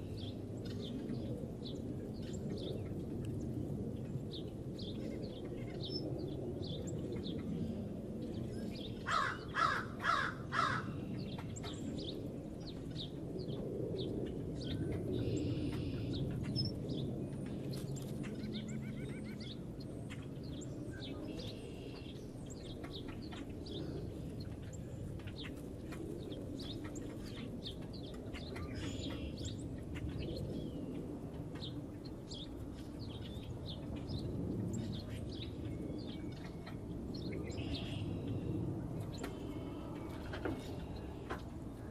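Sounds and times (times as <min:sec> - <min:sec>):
small birds chirping: 0:00.0 - 0:41.9
large bird calling loudly: 0:09.1 - 0:11.0.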